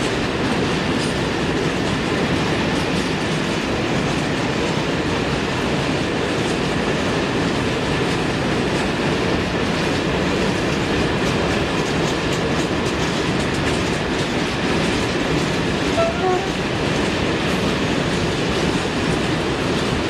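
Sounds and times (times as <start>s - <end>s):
train wheels rumbling on rail: 0.0s - 20.0s
wheels clicking over rail joints: 0.0s - 20.0s.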